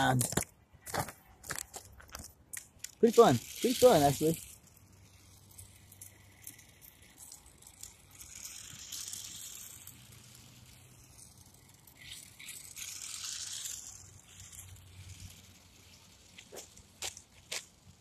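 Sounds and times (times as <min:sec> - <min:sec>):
toy truck electric motor hissing: 0:02.8 - 0:18.0.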